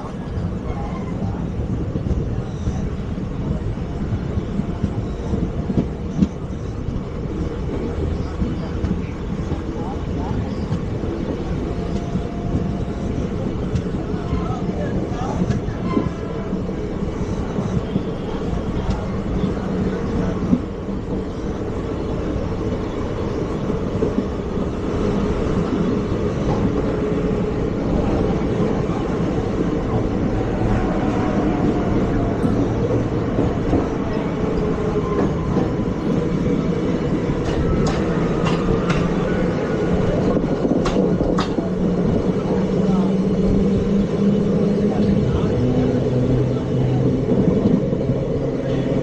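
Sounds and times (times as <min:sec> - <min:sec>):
train wheels rumbling on track: 0:00.0 - 0:49.0.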